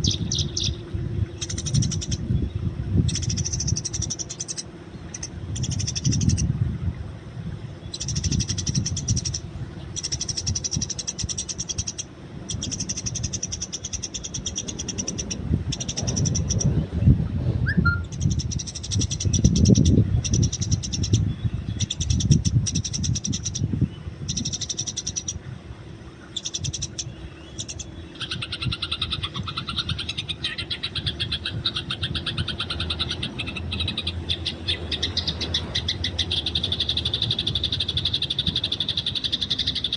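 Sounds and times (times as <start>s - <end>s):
sparrows chattering: 0.0s - 6.5s, 7.8s - 16.9s, 17.7s - 25.4s, 26.2s - 39.9s
low rumble: 14.8s - 20.5s.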